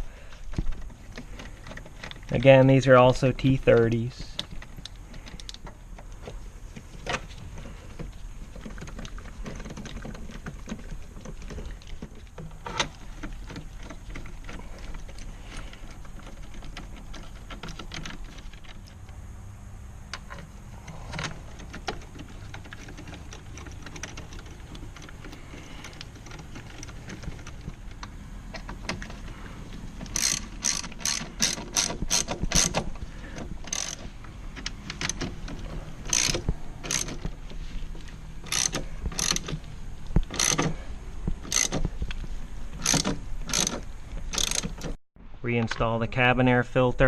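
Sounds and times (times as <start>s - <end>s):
hand ratchet clicking: 30.0s - 37.4s, 38.4s - 39.6s, 40.2s - 40.8s, 41.4s - 41.9s, 42.8s - 45.0s.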